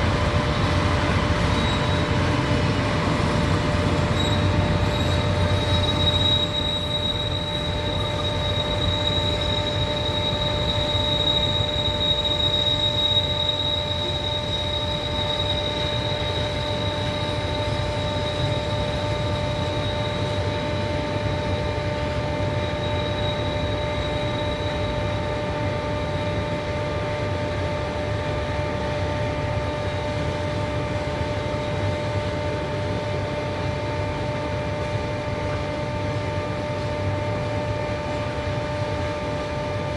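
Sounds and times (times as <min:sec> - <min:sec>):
high wheel squeal: 0:00.0 - 0:26.8
train rumbling on rails: 0:00.0 - 0:39.9.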